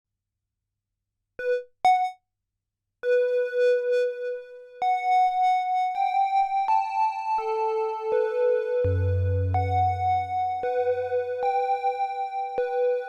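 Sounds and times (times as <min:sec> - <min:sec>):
analog synthesizer notes: 0:08.9 - 0:11.7.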